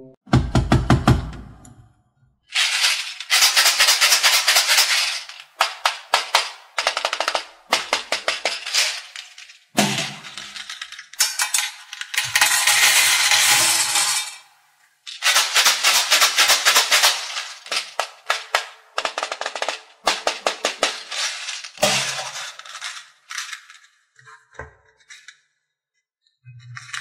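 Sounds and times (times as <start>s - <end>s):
beads rattling in plastic eggs: 2.5s - 14.4s, 15.1s - 24.0s.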